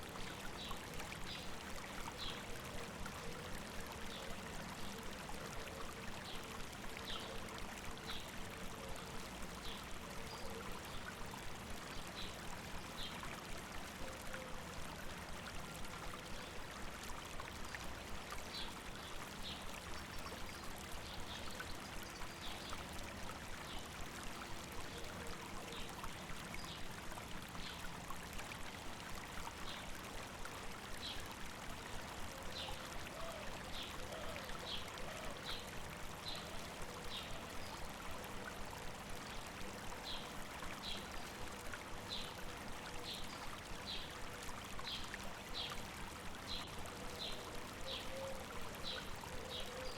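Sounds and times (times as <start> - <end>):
river flowing: 0.0 - 49.9.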